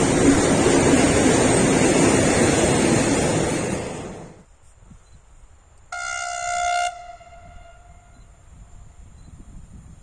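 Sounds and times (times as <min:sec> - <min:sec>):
train wagons rumbling on rails: 0:00.0 - 0:04.5
locomotive horn blast: 0:05.9 - 0:08.2.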